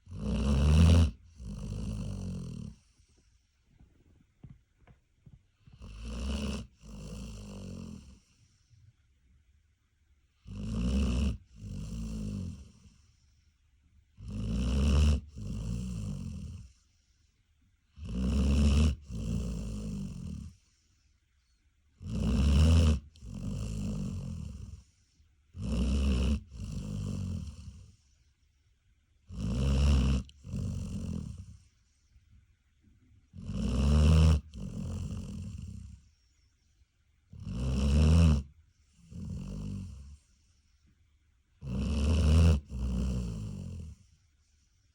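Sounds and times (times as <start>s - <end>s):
large dog snoring: 0.0s - 3.1s, 5.6s - 8.6s, 10.4s - 13.1s, 14.2s - 16.9s, 17.9s - 20.8s, 22.0s - 28.1s, 29.2s - 31.7s, 33.3s - 36.2s, 37.3s - 40.3s, 41.6s - 44.1s.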